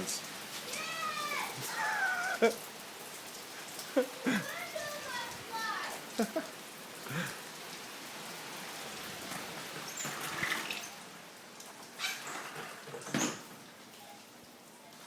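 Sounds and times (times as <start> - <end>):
steady rain: 0.0 - 15.0
wind: 0.0 - 15.0
window blinds clattering: 9.2 - 11.1, 12.0 - 13.6.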